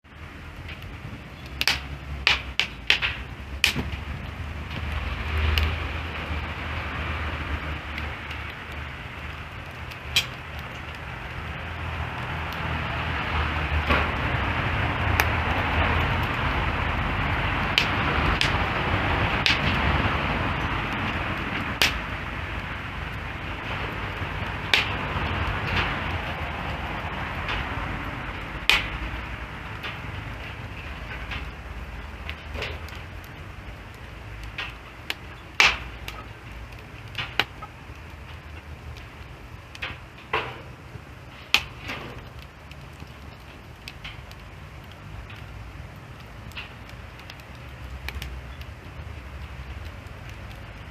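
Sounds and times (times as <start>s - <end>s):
wood fire crackling: 0.0s - 50.9s
low rumble and hiss: 0.1s - 50.9s
sharp pops: 1.4s - 4.0s, 9.9s - 10.5s, 28.6s - 29.0s, 34.4s - 36.3s.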